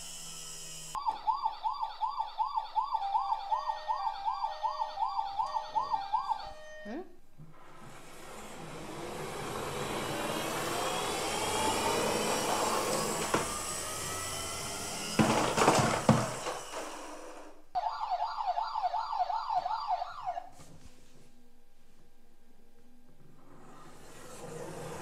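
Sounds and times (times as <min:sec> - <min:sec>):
toy siren wailing: 0:00.9 - 0:07.0, 0:17.8 - 0:20.5.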